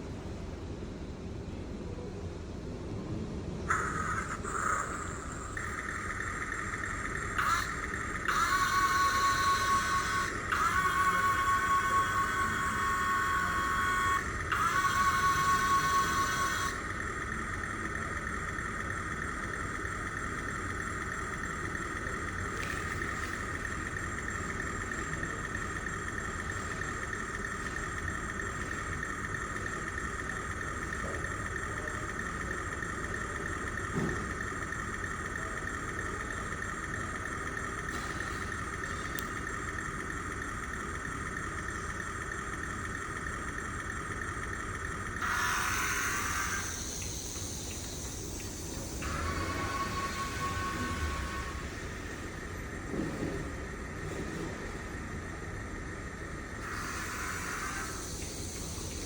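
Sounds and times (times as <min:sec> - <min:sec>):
mini rc truck whining: 0:03.7 - 0:38.4.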